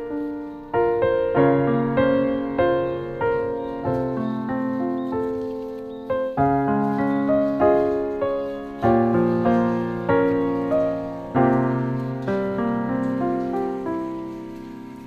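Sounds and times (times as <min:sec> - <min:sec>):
gentle slow piano music: 0:00.0 - 0:15.0.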